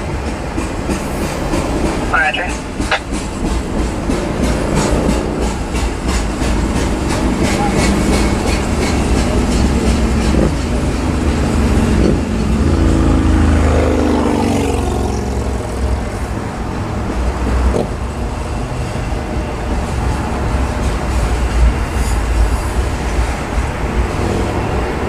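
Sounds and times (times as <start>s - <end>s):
freight cars rumbling on rails: 0.0s - 25.0s
wheels clicking over rail joints: 2.6s - 12.6s.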